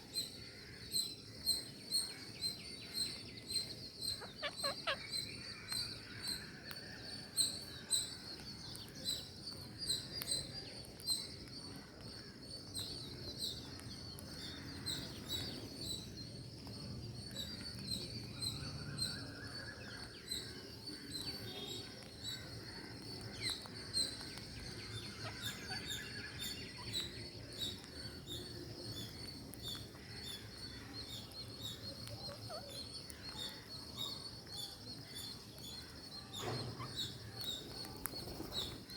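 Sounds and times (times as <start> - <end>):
longer lower bird calls: 0.0 - 38.9
parakeets chirping: 4.1 - 5.6, 24.3 - 34.4.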